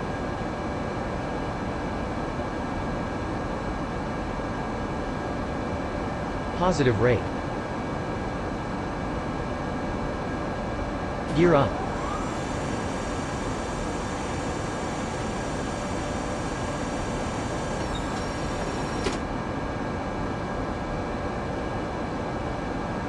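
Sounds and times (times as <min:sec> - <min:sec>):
aircraft cabin engine noise: 0:04.6 - 0:23.0
high whining tones: 0:11.3 - 0:19.1.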